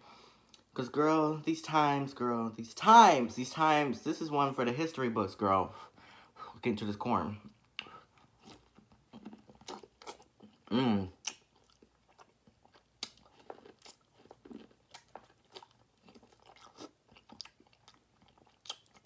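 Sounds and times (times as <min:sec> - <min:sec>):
biting and chewing corn: 0:07.8 - 0:19.0
person humming: 0:10.7 - 0:11.2.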